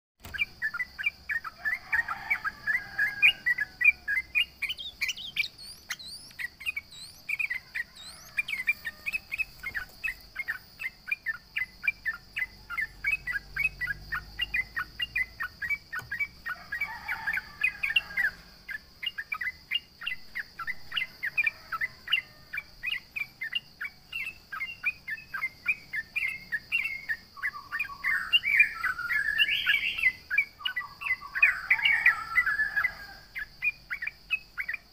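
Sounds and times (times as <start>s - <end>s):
bird chirping sharply: 0.2s - 18.4s
bird chattering: 0.2s - 22.3s.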